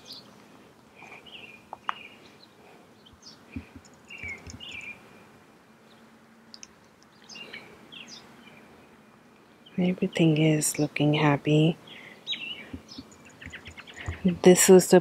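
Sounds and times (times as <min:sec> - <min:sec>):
birds chirping: 0:00.0 - 0:15.0
faint outdoor hush: 0:00.0 - 0:15.0.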